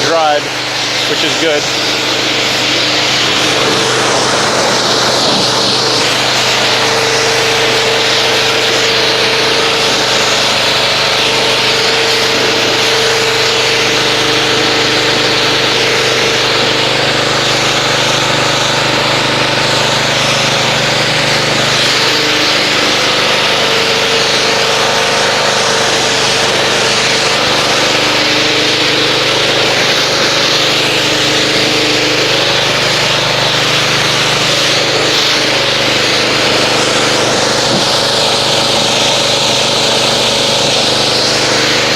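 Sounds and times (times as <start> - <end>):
pressure washer motor humming: 0.0 - 41.9
water spray hissing: 0.2 - 15.8, 29.6 - 39.2.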